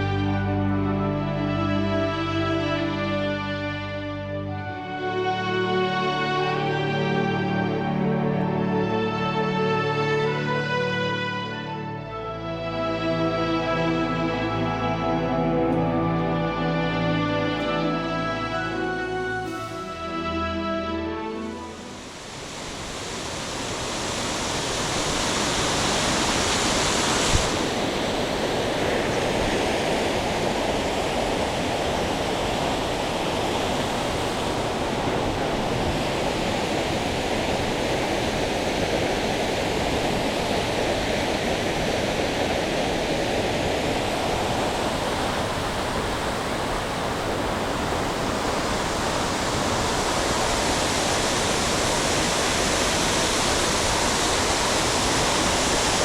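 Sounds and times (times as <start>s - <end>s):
waterfall roaring: 21.3s - 56.0s.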